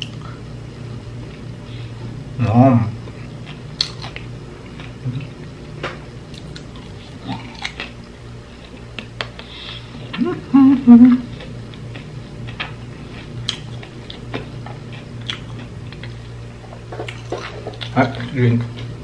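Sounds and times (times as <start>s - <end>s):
man humming mmm: 10.1s - 11.3s
soft wet chewing clicks: 11.4s - 16.2s.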